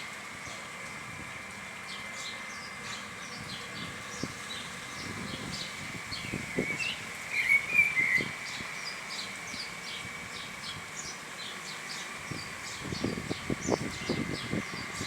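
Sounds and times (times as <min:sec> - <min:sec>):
birds chirping: 0:01.8 - 0:15.0
bird warbling call: 0:06.6 - 0:08.6.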